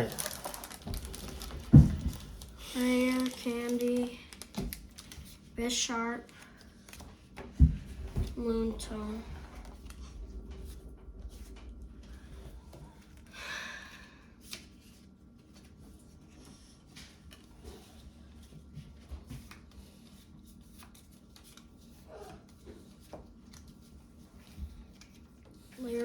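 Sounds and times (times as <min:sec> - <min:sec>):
card rustle: 0:00.0 - 0:07.4.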